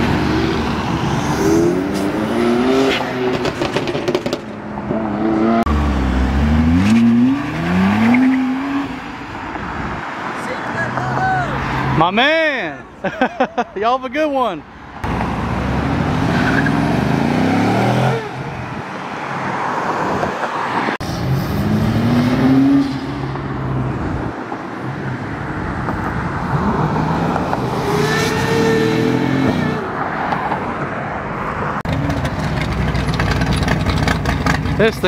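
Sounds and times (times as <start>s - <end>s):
car engines revving up: 0.0s - 9.3s, 15.0s - 18.8s, 19.4s - 24.3s, 26.4s - 30.0s, 31.8s - 35.0s.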